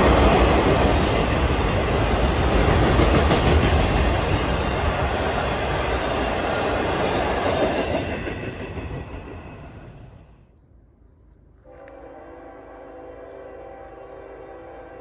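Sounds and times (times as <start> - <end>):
train rumbling and rattling past: 0.0 - 10.5.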